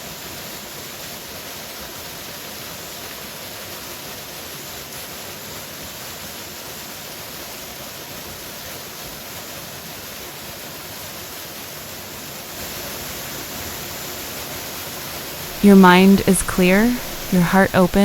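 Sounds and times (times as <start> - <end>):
waterfall roaring: 15.5 - 18.0.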